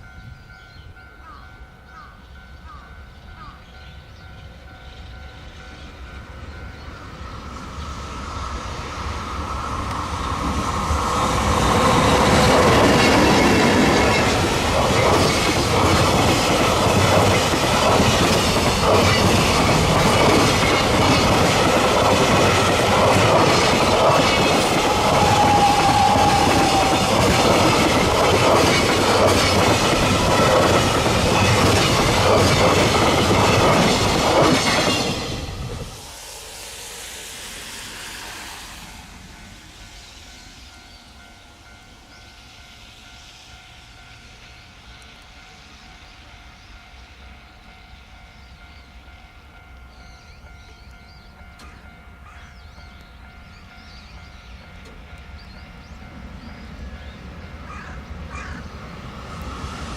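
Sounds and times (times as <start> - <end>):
freight train rumbling past: 0.0 - 59.9
wheels ticking over rail joints: 9.8 - 35.2, 53.8 - 56.0.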